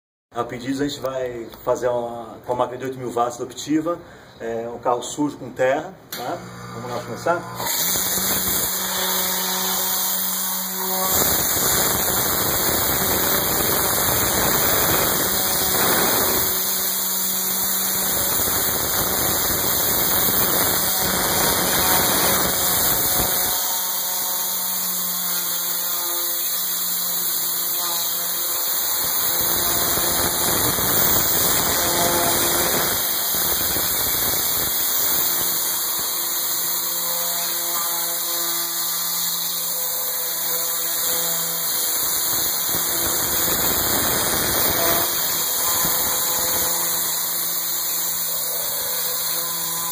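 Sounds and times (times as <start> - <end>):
steam spray hissing: 7.7 - 23.9, 26.5 - 36.8, 40.9 - 49.7.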